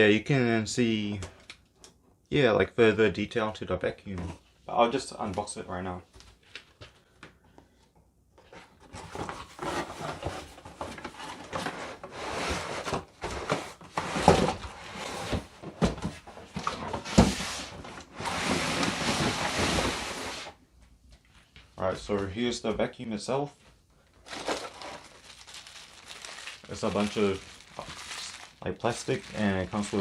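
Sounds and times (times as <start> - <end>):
cardboard packaging rustling: 8.5 - 20.5, 24.1 - 30.0.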